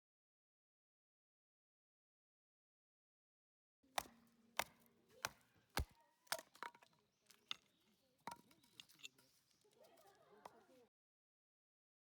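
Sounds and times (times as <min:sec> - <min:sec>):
firewood chopping knocks: 0:04.0 - 0:07.6.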